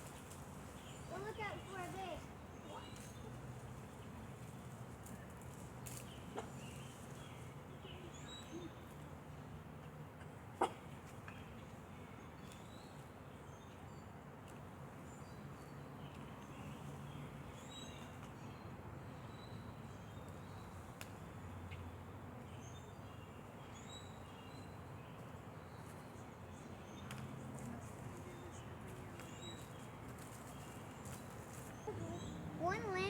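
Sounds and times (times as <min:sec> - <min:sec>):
low background noise: 0:00.0 - 0:33.0.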